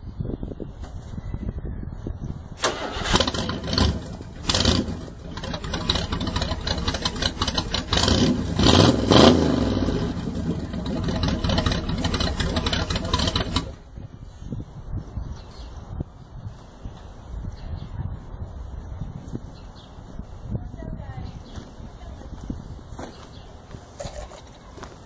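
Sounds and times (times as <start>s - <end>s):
small engine sputtering and revving: 2.9s - 13.8s.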